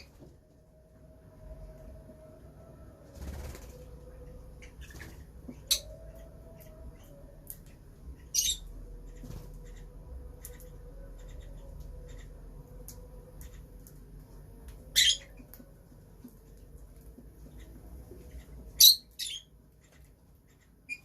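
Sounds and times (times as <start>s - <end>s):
lovebirds chirping softly: 4.2s - 21.0s.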